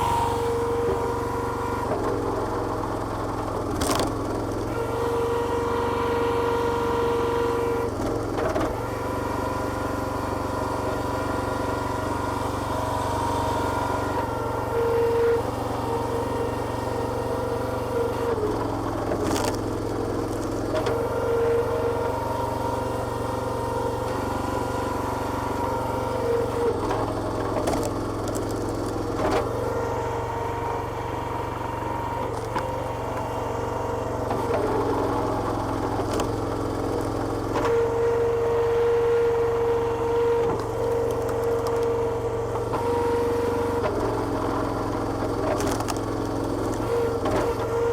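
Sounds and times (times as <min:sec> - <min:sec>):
higher whining tone: 0:00.0 - 0:01.6
small petrol engine running: 0:00.0 - 0:47.9.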